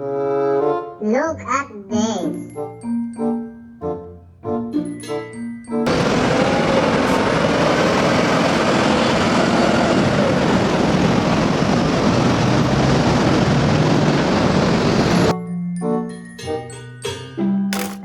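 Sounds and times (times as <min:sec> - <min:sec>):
vehicle engine rushing: 0:05.9 - 0:15.3.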